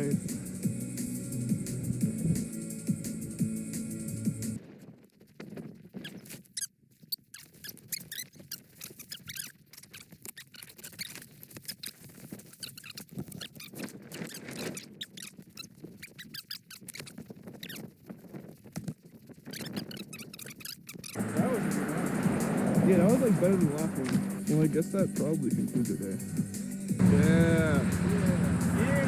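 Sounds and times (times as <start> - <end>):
snow squeaking under skis: 5.6 - 18.5, 19.4 - 24.7, 28.8 - 29.0.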